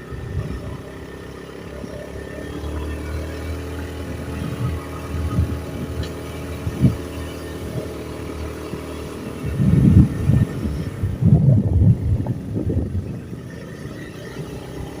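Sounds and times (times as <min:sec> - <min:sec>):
vehicle engine running: 0:00.0 - 0:15.0
low rumbling surges: 0:09.4 - 0:13.4.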